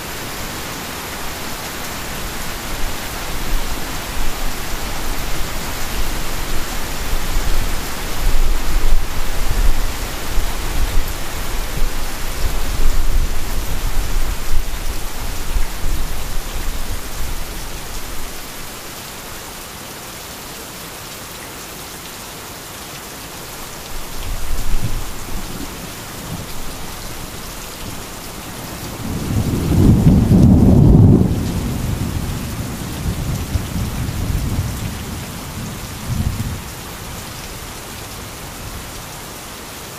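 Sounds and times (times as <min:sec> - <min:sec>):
heavy rain: 0:00.0 - 0:39.9
thunder rumbling: 0:28.8 - 0:36.6.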